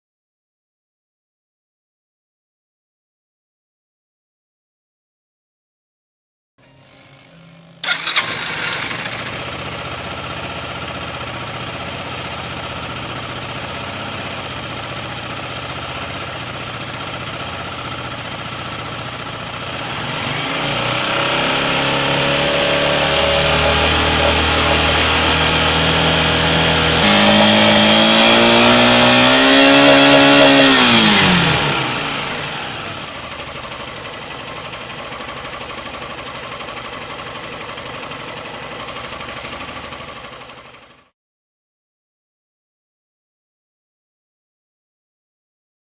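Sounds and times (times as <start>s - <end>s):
motorcycle engine revving and idling: 6.8s - 41.1s.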